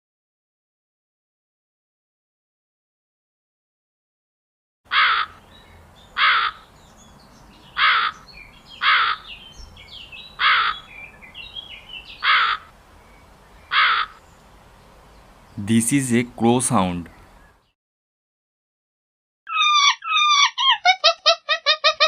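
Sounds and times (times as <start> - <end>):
crow cawing: 4.9 - 5.4, 6.2 - 6.7, 7.8 - 9.4, 10.4 - 10.9, 12.2 - 12.8, 13.7 - 14.2
small birds chirping: 5.0 - 17.8.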